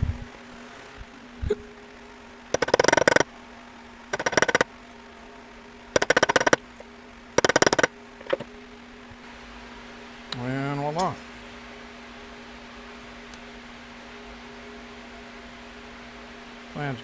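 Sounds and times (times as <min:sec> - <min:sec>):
hole punch rapid clicking: 0:02.6 - 0:03.2, 0:04.2 - 0:04.6, 0:06.0 - 0:06.6, 0:07.4 - 0:08.4.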